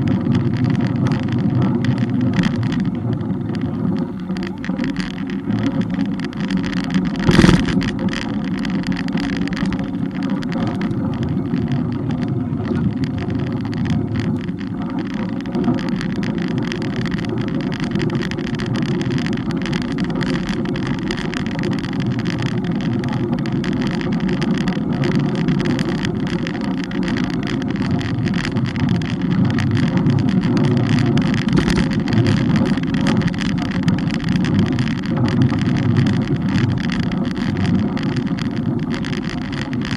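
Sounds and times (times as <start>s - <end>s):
road rumble: 0.0s - 39.9s
wind: 0.0s - 39.9s.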